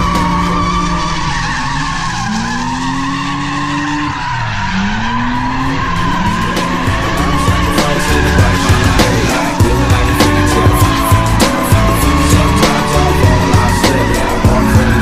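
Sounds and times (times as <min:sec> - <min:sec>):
background music: 0:00.0 - 0:03.0, 0:05.5 - 0:15.0
car engine revving: 0:00.0 - 0:15.0
car tires squealing: 0:00.0 - 0:15.0.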